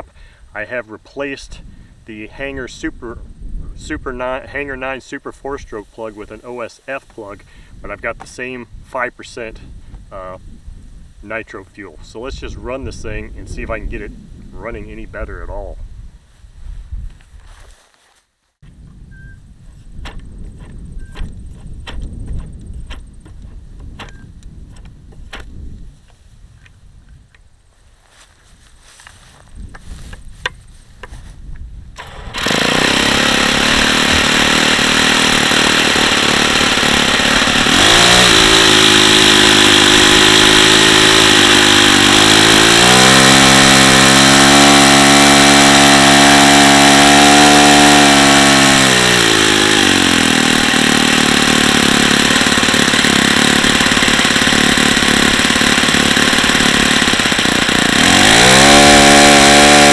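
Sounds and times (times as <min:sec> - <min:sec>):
model airplane engine revving: 0:32.0 - 0:59.9.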